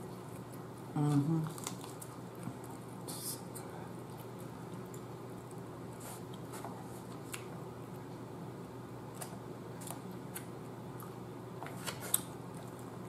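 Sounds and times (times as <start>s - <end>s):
steady low hum: 0.0s - 13.0s
person chewing: 1.5s - 7.6s, 9.1s - 11.2s.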